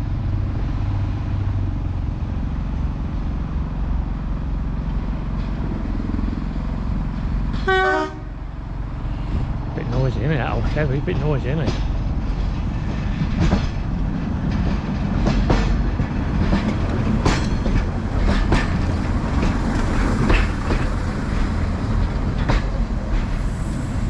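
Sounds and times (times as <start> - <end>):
train rumbling: 0.0 - 24.0.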